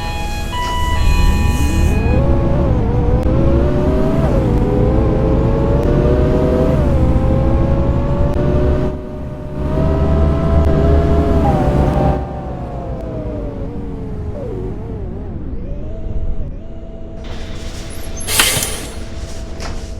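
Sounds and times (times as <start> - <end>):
diesel engine drone: 0.0 - 19.9
bus gearbox whine: 17.2 - 19.9.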